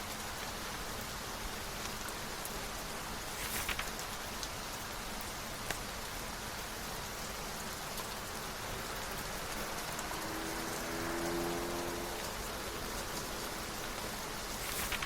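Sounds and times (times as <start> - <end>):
steady rain falling: 0.0 - 15.0
loud crackles: 14.4 - 15.0.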